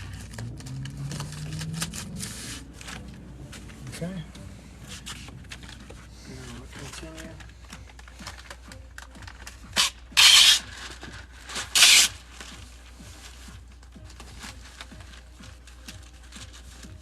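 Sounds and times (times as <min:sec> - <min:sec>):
masking tape tearing off roll: 0:00.0 - 0:02.9, 0:09.7 - 0:12.3.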